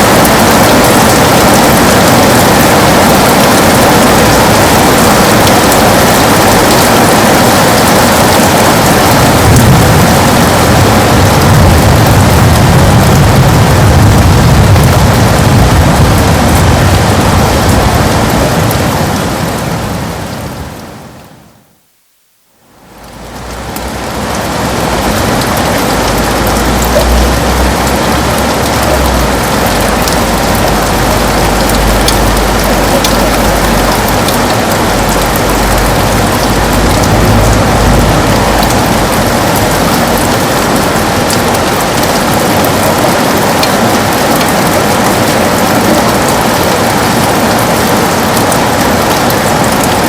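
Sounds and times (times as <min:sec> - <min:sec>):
heavy rain on a window: 0:00.0 - 0:50.0
low rumble: 0:08.9 - 0:20.8, 0:22.9 - 0:42.1.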